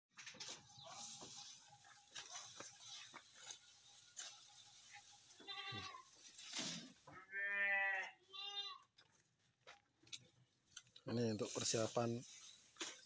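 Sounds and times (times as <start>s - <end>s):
livestock bleating: 5.3s - 6.2s, 7.1s - 8.9s.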